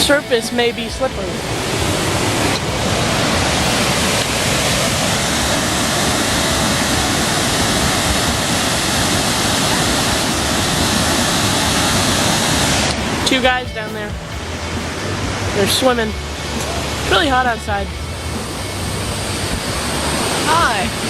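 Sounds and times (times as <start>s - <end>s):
waterfall pouring: 1.4s - 13.4s.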